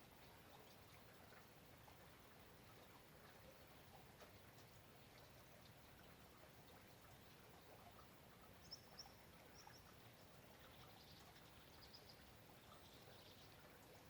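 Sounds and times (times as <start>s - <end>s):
light rain patter: 0.0s - 14.0s
bird chirping: 8.6s - 9.9s, 10.6s - 13.6s.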